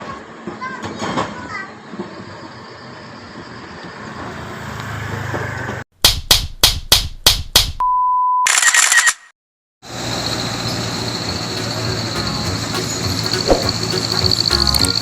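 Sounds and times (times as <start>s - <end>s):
sharp hits: 11.4s - 15.0s.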